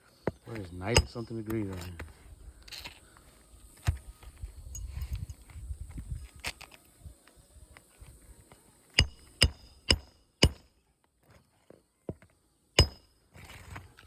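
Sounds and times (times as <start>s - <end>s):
hammer striking roofing nail: 9.0s - 10.7s, 12.8s - 13.0s.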